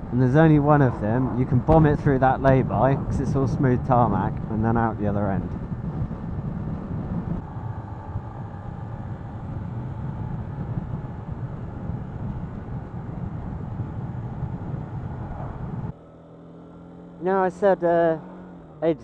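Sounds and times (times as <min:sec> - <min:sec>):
wind and road noise: 0:00.0 - 0:19.0
motorcycle engine running: 0:04.3 - 0:19.0.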